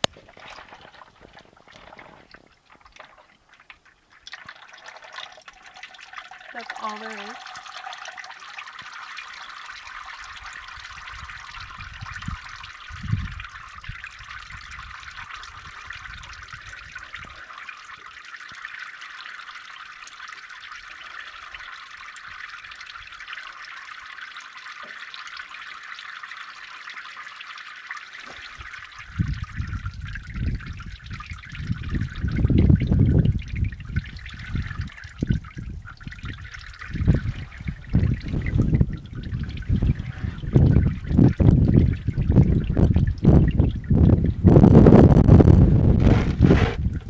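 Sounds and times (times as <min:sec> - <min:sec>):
oil trickling: 0:00.0 - 0:47.0
low rumbling thumps: 0:37.0 - 0:47.0.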